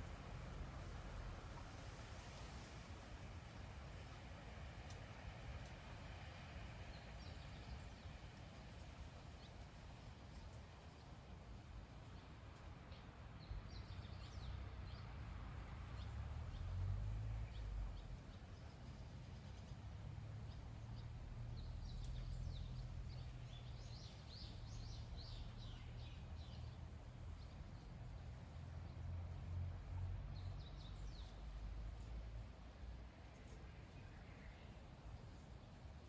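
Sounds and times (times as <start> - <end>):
low steady rumble: 0.0 - 2.3, 13.4 - 36.0
small birds chirping: 20.5 - 36.0.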